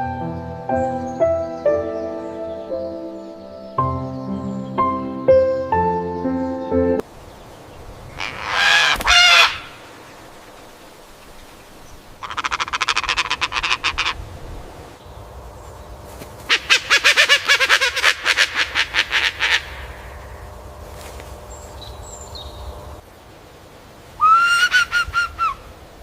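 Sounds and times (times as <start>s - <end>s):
music track: 0.0s - 7.0s
faint outdoor background: 0.0s - 26.0s
rapid rattling animal calls: 8.1s - 14.2s, 16.4s - 20.6s
harsh animal call: 12.2s - 14.2s.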